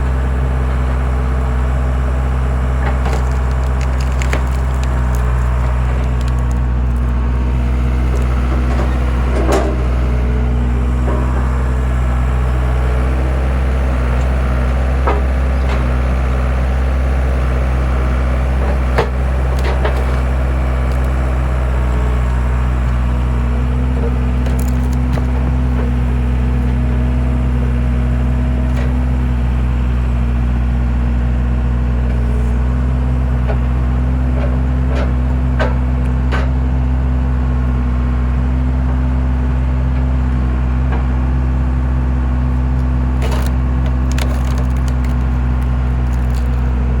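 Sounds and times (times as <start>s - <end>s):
skid steer engine running: 0.0s - 47.0s
wood cracking and snapping: 2.2s - 10.0s, 18.3s - 27.3s, 42.7s - 46.9s.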